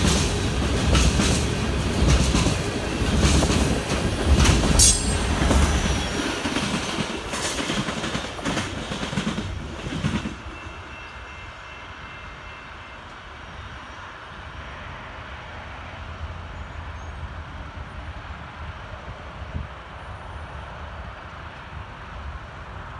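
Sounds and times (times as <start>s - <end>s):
freight train wheels clacking: 0.0s - 11.4s.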